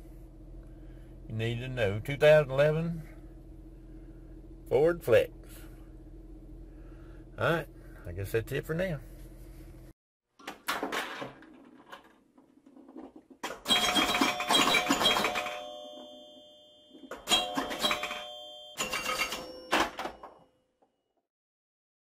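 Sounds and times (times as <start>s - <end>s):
clattering noise: 10.4s - 16.4s
bell-like ringing chimes: 13.7s - 20.4s.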